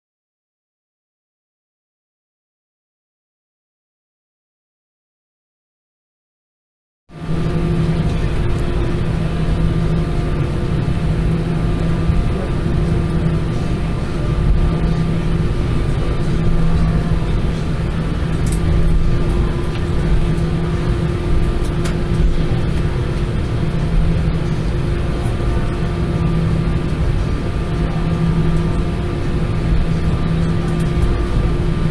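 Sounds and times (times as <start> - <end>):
constant hum tones: 7.1 - 31.9
airplane cabin rumble: 7.2 - 31.9.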